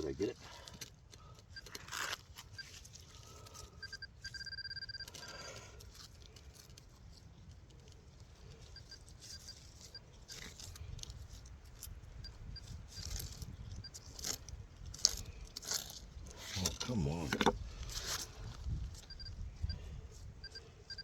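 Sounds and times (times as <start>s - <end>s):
scraping of wet soil: 0.0s - 4.0s, 12.6s - 19.2s
pinpointer beeping: 3.8s - 5.2s, 19.0s - 21.0s.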